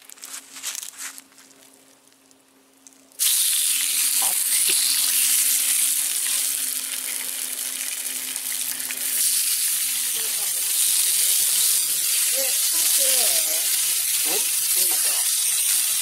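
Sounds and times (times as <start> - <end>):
meat sizzling: 3.2 - 16.0.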